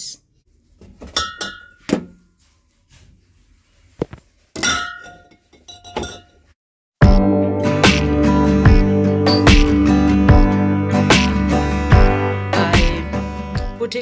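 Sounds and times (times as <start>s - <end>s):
glass bottles clinking: 1.0s - 2.1s, 4.6s - 6.4s
acoustic guitar music: 7.0s - 14.0s.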